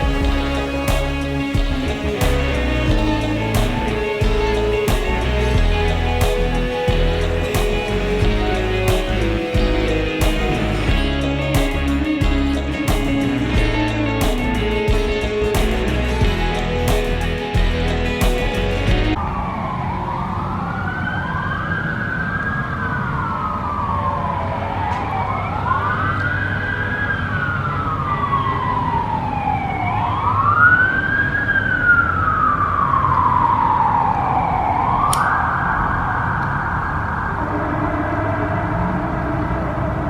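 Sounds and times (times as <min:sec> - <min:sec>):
low traffic rumble: 0:00.0 - 0:21.0
emergency vehicle siren wailing: 0:00.0 - 0:40.0.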